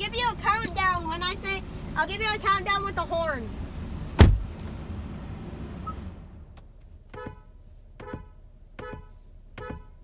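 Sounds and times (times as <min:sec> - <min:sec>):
car horn short beeps: 0:07.1 - 0:10.0.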